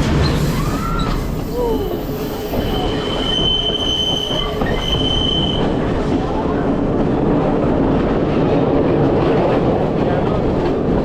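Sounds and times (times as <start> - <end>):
train rumbling on rails: 0.0 - 11.0
high wheel squeal: 0.2 - 5.7.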